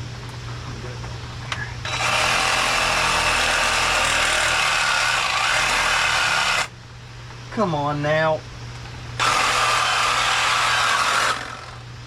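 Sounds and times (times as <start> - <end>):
power tool running: 1.8 - 6.7, 9.2 - 11.9.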